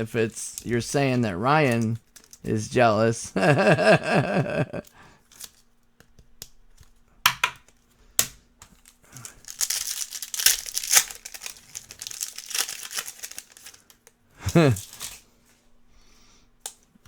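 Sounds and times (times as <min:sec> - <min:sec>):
wrapper tearing and crinkling: 0:01.6 - 0:02.4, 0:08.8 - 0:15.2.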